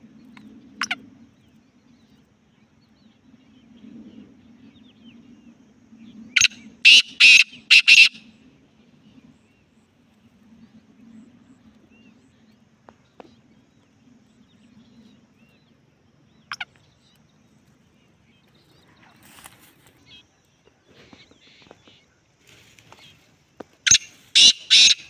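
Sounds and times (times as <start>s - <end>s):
bird harsh grating call: 6.4s - 8.2s, 23.9s - 25.0s.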